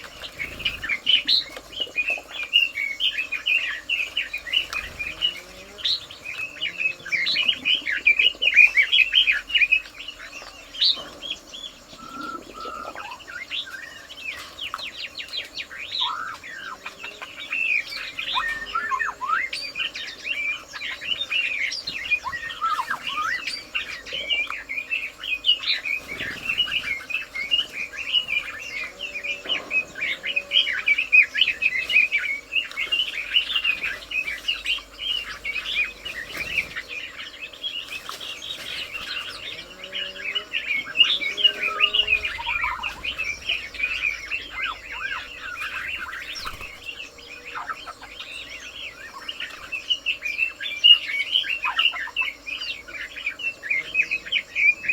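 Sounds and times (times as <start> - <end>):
small birds chirping and twittering: 0.0 - 54.9
low gliding bird calls: 38.0 - 53.0.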